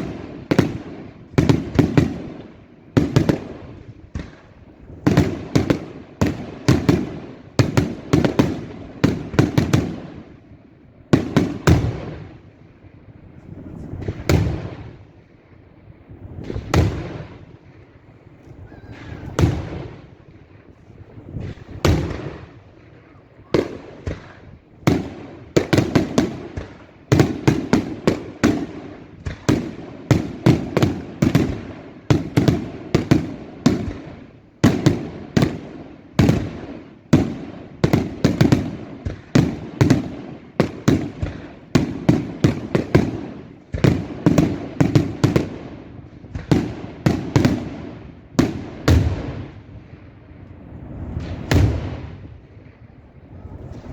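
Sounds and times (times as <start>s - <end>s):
fireworks bangs and cracks: 0.0s - 53.9s
echoing booms: 14.0s - 15.1s, 16.3s - 17.8s, 18.6s - 53.9s.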